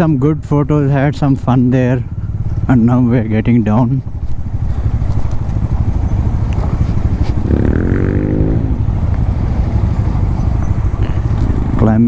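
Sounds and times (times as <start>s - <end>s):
motorcycle engine running: 0.0s - 12.0s
rising pitched tone: 5.9s - 9.4s.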